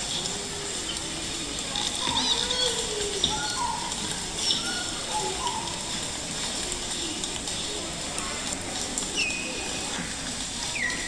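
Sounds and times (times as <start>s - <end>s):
faint murmur of voices: 0.0s - 11.0s
birds chirping and calling: 1.8s - 6.1s, 10.6s - 11.0s.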